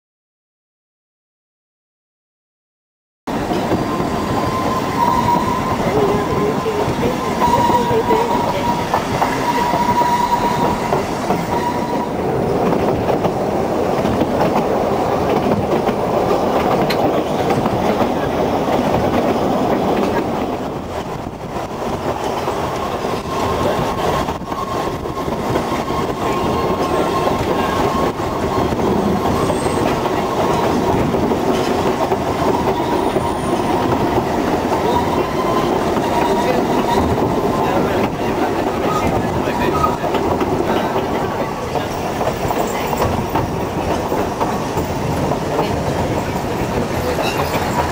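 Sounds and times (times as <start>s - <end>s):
train wheels clattering on rail: 3.3s - 47.9s
high squeal: 3.7s - 12.2s, 22.9s - 31.0s, 32.3s - 40.0s, 47.0s - 47.9s.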